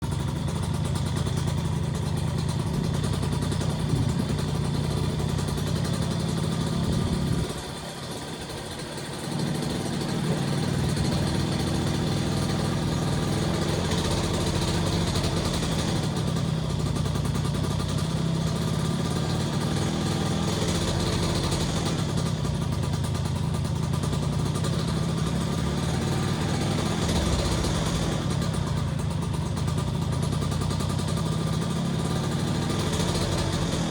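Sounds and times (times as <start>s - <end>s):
small motorcycle engine idling: 0.0s - 33.9s.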